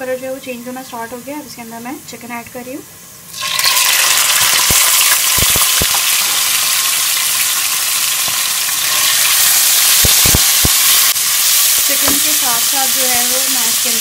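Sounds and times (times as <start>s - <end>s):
chicken sizzling in hot oil: 3.3s - 14.0s.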